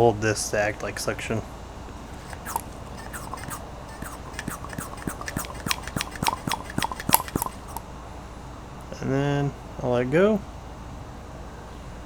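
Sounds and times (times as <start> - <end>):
brake bleeder clicks and squeaks: 2.2 - 7.8.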